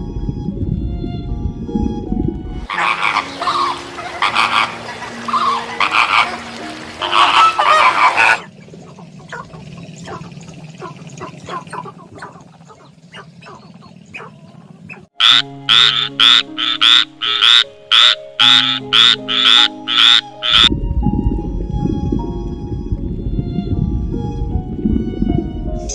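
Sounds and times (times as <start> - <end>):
frogs croaking: 2.7 - 20.7.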